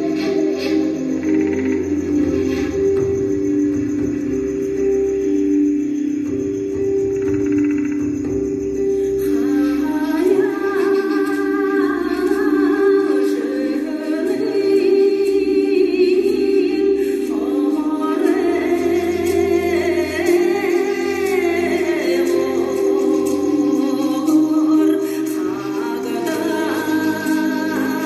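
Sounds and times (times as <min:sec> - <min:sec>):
voices singing over a drone: 0:00.0 - 0:28.0
higher voice singing: 0:09.1 - 0:28.0.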